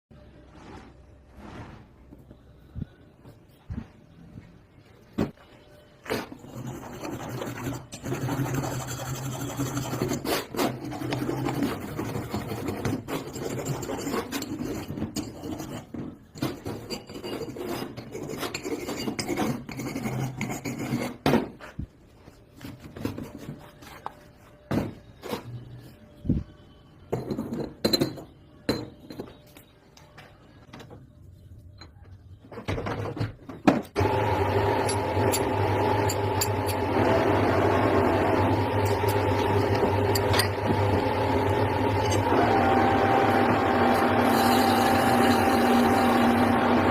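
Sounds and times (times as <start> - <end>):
file rasping on metal: 6.4 - 15.9, 16.7 - 21.2
machine motor running: 34.0 - 46.9.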